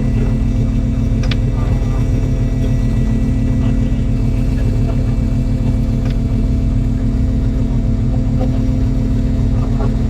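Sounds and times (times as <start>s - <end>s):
boat engine rumbling: 0.0s - 10.0s.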